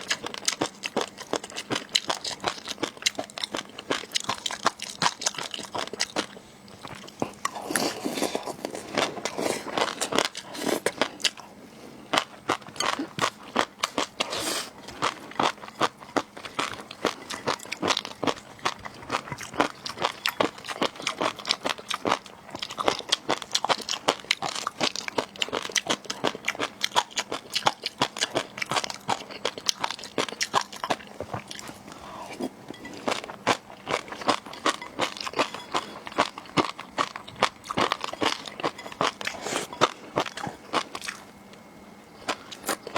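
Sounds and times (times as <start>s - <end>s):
crunching and chewing food: 0.0s - 42.9s.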